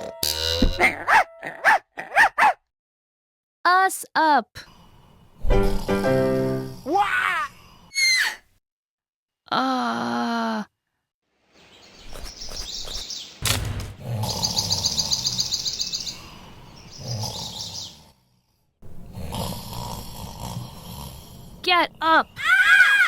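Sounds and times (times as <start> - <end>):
cartoon birds chirping: 14.0 - 18.0.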